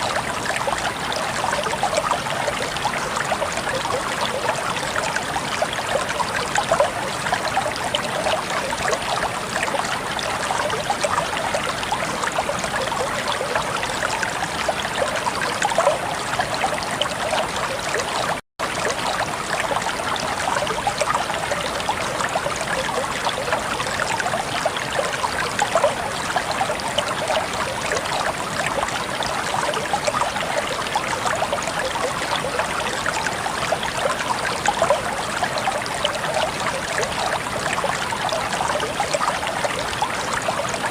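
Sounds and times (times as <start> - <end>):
water babbling and trickling: 0.0 - 40.9.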